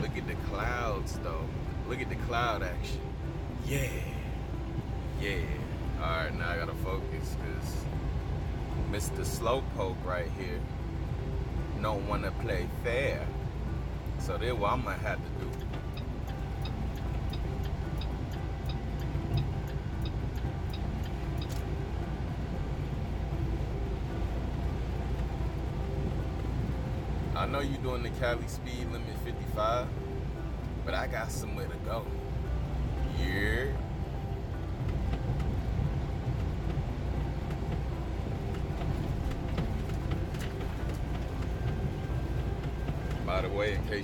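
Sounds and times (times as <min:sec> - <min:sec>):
road noise: 0:00.0 - 0:44.0
truck engine drone: 0:00.0 - 0:44.0
turn signal clicking: 0:15.4 - 0:21.8.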